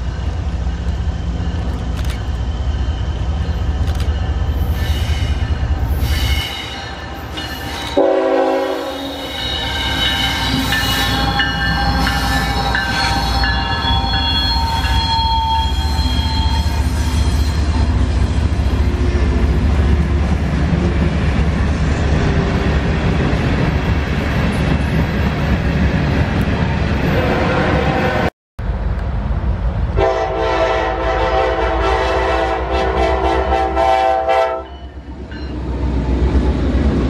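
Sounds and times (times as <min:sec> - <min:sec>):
high-pitched locomotive tones: 0:00.0 - 0:20.9, 0:30.0 - 0:36.0.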